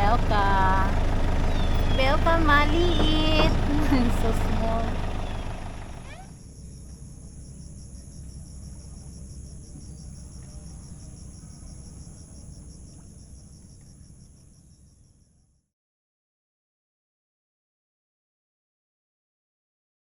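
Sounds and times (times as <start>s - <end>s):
insects trilling: 0.0s - 15.5s.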